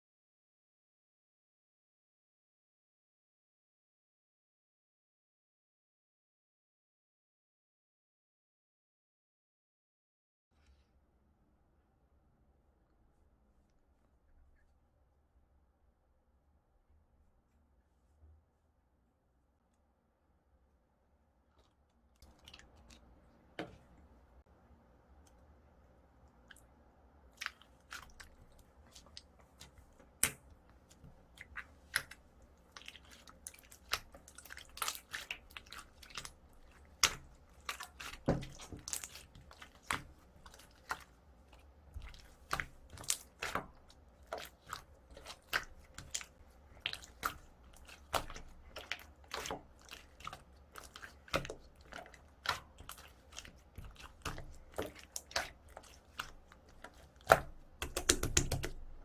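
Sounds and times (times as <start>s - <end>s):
slime squished by hand: 27.3s - 59.0s.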